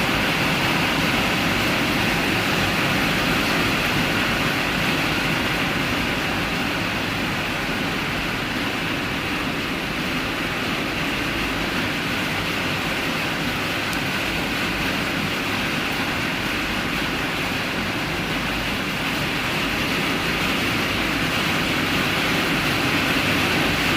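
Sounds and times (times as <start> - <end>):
heavy rain pouring: 0.0 - 23.9.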